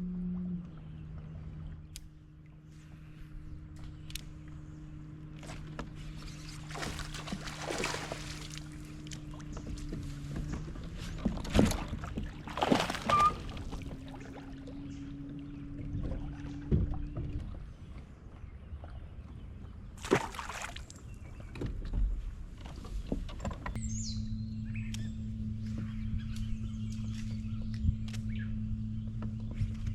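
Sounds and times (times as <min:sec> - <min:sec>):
boat motor humming: 0:00.0 - 0:29.9
knocks and thumps against boat: 0:05.3 - 0:19.4, 0:20.0 - 0:23.8.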